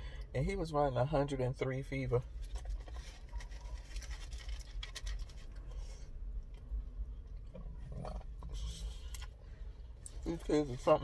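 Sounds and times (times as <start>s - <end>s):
low rumble in car cabin: 0.0s - 11.0s
paper wrapper crinkling: 2.4s - 5.8s.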